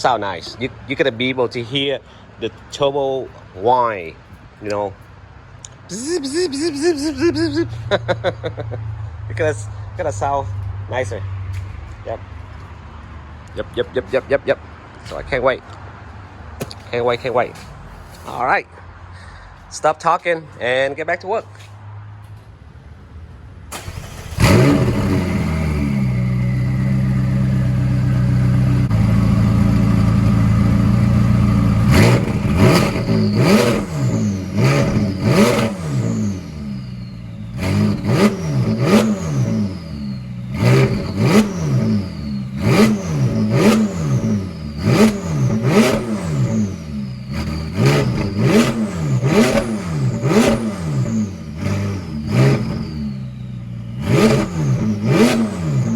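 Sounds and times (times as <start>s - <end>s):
car engine cranking and starting: 23.7s - 55.9s
car engine revving: 23.7s - 55.9s.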